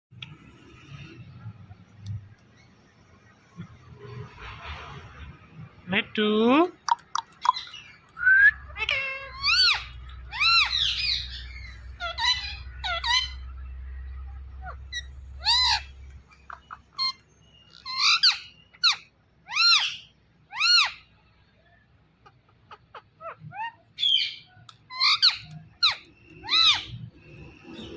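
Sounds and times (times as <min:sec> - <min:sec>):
low steady hum: 0:05.6 - 0:19.5
parakeet calling: 0:06.9 - 0:21.2, 0:22.2 - 0:27.9.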